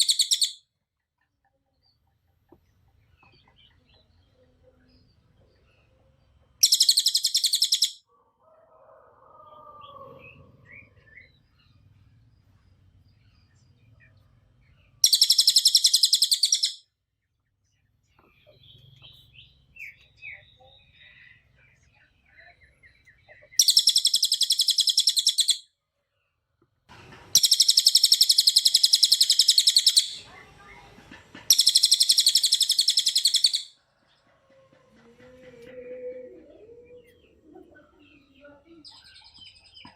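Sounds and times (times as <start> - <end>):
songbird trilling: 0.0 - 0.6, 6.6 - 8.0, 15.0 - 16.8, 22.9 - 25.6, 27.3 - 30.8, 31.5 - 33.8
songbird warbling and chirps: 0.0 - 0.6, 3.0 - 8.0, 9.5 - 16.8, 17.7 - 25.7, 27.3 - 34.2, 35.2 - 39.9
songbird high rapid trill: 27.3 - 30.3, 31.5 - 33.7.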